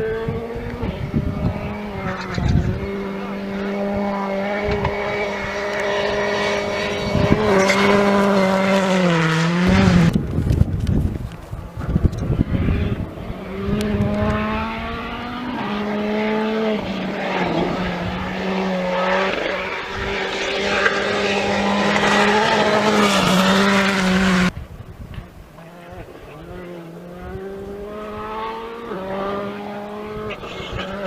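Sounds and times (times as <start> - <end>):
rally car engine at full throttle: 0.0 - 31.0
rush of gravel and tyres: 0.0 - 31.0.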